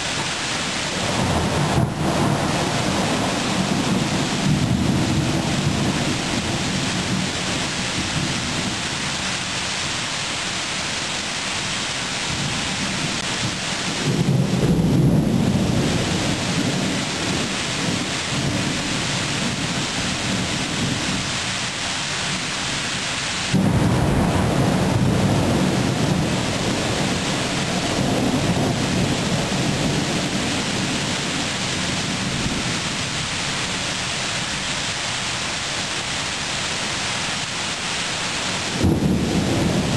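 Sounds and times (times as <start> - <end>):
rain falling: 0.0 - 39.9
thunder rumbling: 0.8 - 9.4, 12.3 - 21.6, 23.4 - 34.6, 38.6 - 39.9.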